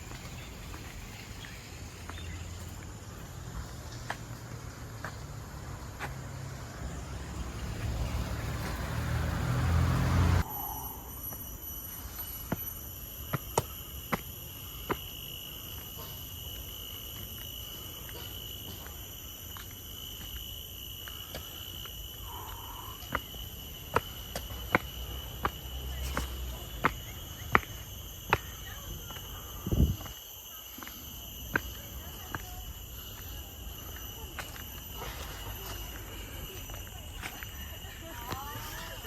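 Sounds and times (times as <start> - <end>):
insects buzzing and shrilling: 0.0 - 39.0
passing vehicle: 5.2 - 10.6.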